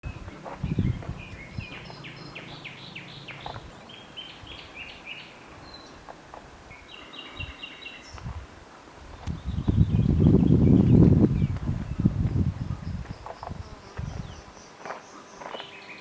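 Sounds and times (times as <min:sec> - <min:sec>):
songbirds singing: 0:00.0 - 0:08.4, 0:09.0 - 0:16.0
low thumps: 0:00.4 - 0:02.1.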